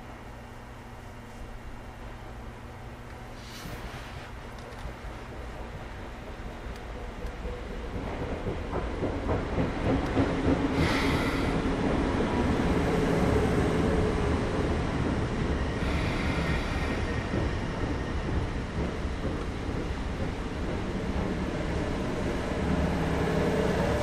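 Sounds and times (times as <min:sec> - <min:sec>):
train hum: 0:00.0 - 0:24.0
train on rails: 0:00.0 - 0:24.0.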